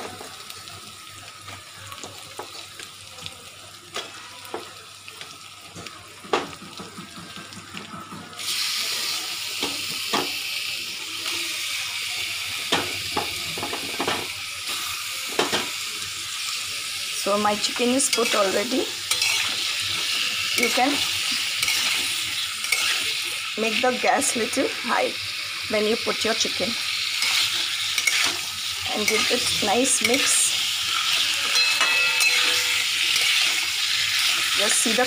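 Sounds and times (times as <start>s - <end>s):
paste sizzling in hot oil: 0.0s - 35.0s
chicken pieces knocking in pan: 6.2s - 8.3s.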